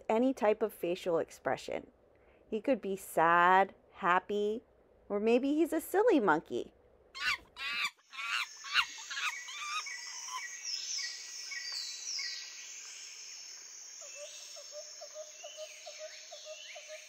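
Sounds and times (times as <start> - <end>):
bird chirping: 7.2 - 17.0.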